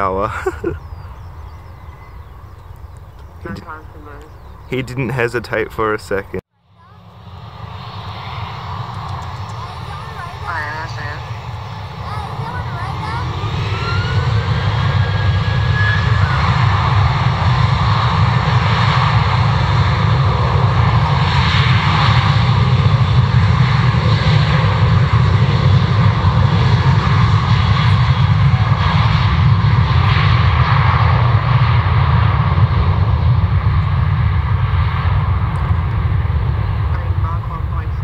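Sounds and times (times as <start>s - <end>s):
jet engines running: 0.0s - 38.0s.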